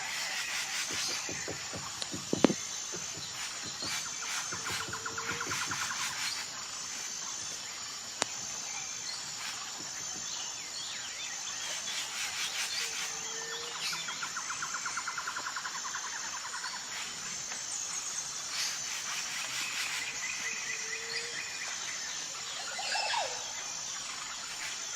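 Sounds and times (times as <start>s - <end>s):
rapid bird trill: 0.0s - 7.0s
high insect trill: 0.0s - 24.9s.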